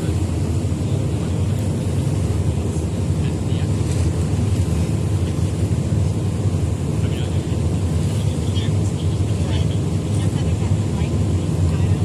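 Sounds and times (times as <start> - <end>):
ferry engine low rumble: 0.0 - 12.0.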